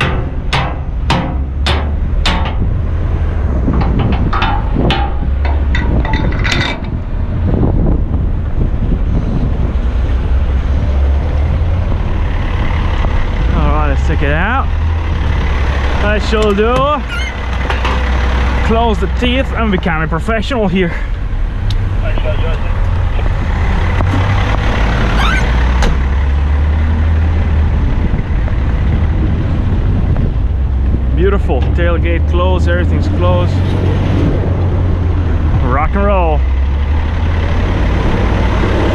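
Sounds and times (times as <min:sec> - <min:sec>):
wind rumble on microphone: 0:00.0 - 0:38.9
dump truck idling: 0:11.2 - 0:27.4
short squeak: 0:17.0 - 0:17.4, 0:25.1 - 0:25.6.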